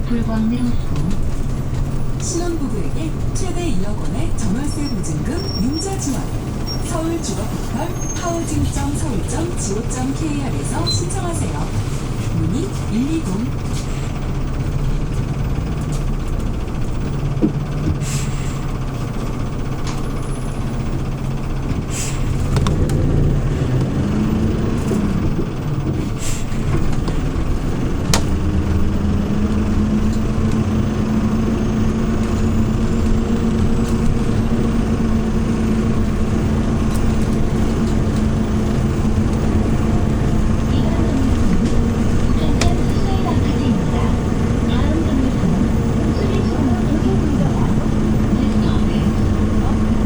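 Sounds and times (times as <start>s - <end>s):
bus engine running: 0.0s - 50.0s.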